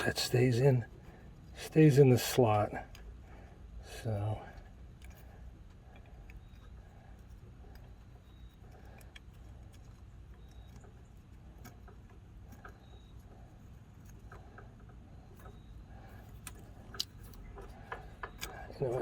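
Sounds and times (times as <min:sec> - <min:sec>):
low steady hum: 0:00.0 - 0:19.0
small clicks and taps of handling: 0:04.5 - 0:19.0.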